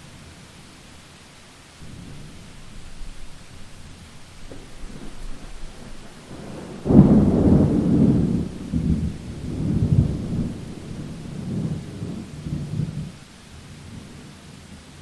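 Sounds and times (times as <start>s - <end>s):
steady rain hiss: 0.0s - 15.0s
thunder clap and rumble: 1.8s - 13.2s.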